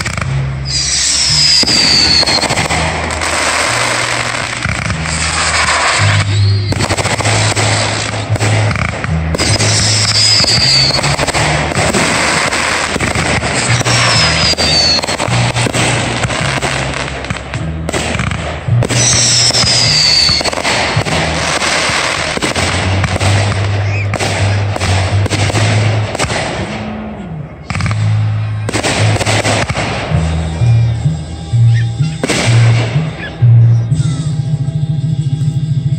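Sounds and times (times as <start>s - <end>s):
falling firework whistle: 0.0s - 17.2s, 18.8s - 26.0s
firework bursts and crackling pops: 0.0s - 30.9s, 32.1s - 35.9s.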